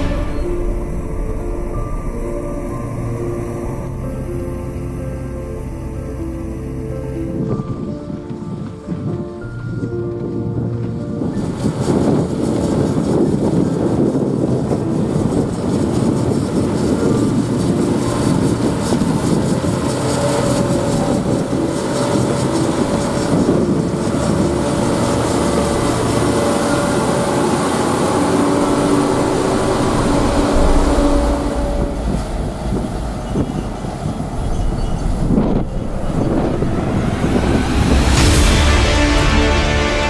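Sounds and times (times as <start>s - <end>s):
harvesting machinery rumbling: 14.3s - 40.0s.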